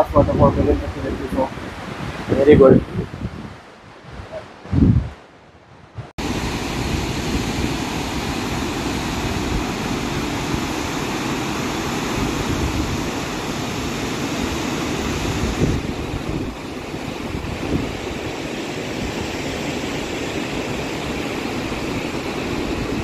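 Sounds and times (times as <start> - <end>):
waterfall roaring: 6.2 - 23.0.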